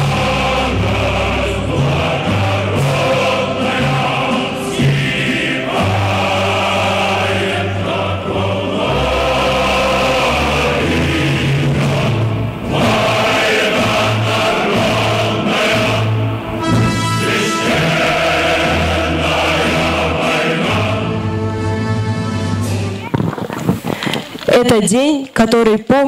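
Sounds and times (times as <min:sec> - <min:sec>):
choir singing: 0:00.0 - 0:22.8
held bass notes: 0:00.0 - 0:25.0.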